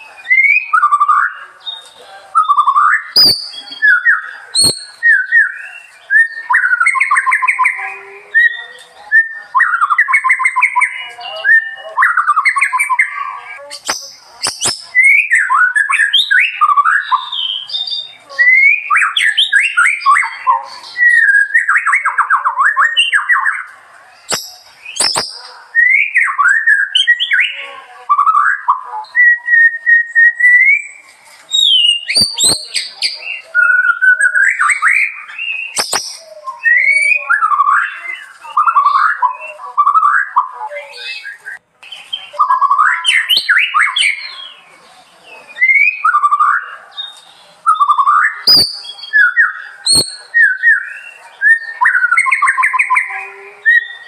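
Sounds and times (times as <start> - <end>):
songbird singing: 0.0 - 54.0
sharp clicks: 35.8 - 36.2.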